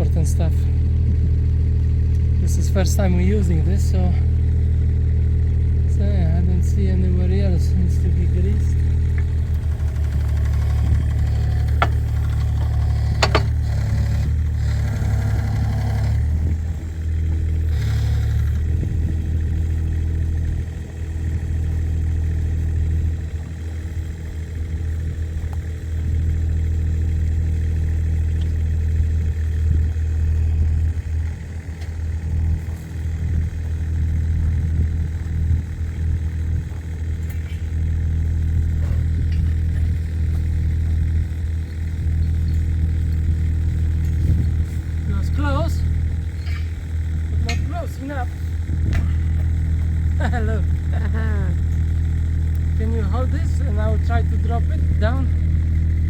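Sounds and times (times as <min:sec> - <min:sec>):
diesel excavator engine running: 0:00.0 - 0:56.0
sharp metallic clicks: 0:08.8 - 0:18.6.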